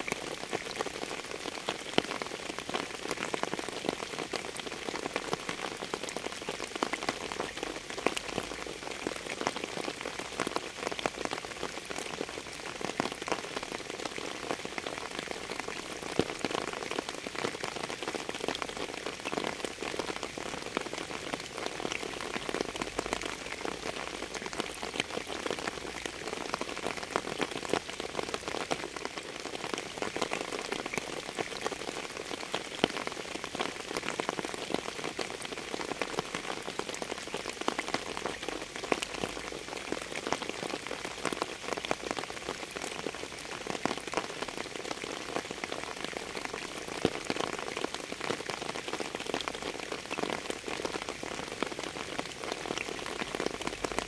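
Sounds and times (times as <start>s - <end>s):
rain on a hard surface: 0.0s - 54.0s.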